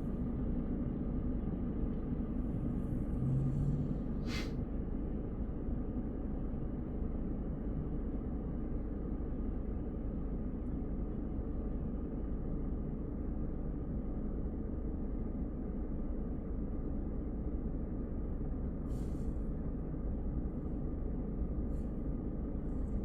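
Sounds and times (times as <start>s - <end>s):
car road and tyre rumble: 0.3s - 4.7s.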